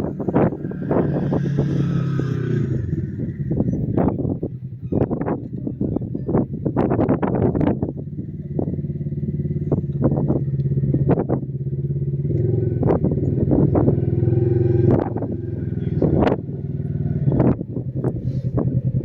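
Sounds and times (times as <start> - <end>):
off-road vehicle engine running: 0.0 - 19.0.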